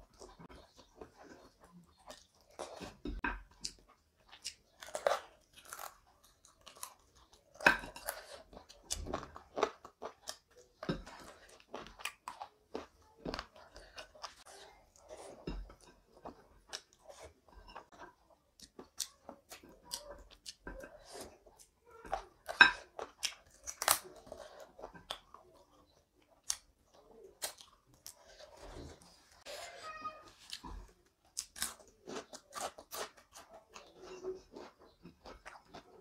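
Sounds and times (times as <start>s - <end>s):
close chewing clicks and smacks: 0.0s - 4.9s.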